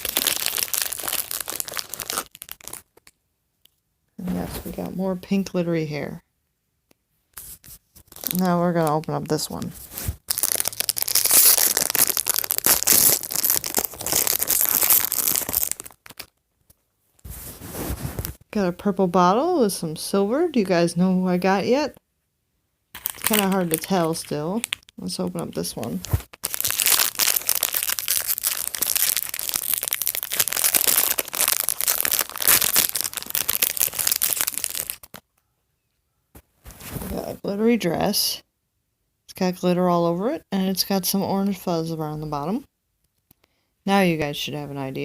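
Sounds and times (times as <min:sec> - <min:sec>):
plastic wrapper tearing and crinkling: 0:00.0 - 0:03.2, 0:07.4 - 0:16.4, 0:23.0 - 0:25.0, 0:25.7 - 0:35.2.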